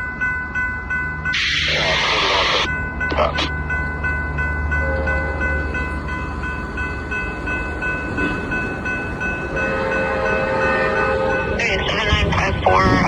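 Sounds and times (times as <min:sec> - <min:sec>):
diesel locomotive engine rumble: 0:00.0 - 0:13.0
high-pitched whine: 0:01.4 - 0:03.5.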